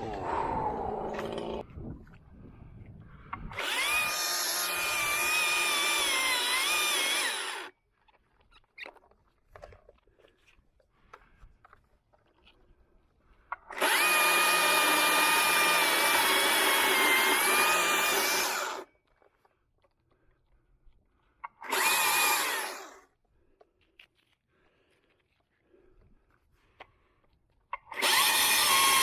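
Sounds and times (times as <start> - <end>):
chainsaw running: 3.5 - 7.7, 13.7 - 18.9, 21.6 - 23.0, 27.9 - 29.0.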